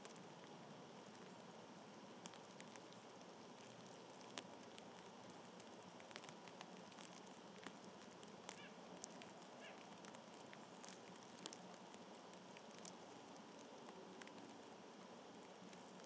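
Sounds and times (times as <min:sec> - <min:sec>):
small ticks and clicks: 0:00.0 - 0:16.0
faint bird chirps: 0:08.5 - 0:08.9, 0:09.6 - 0:09.9.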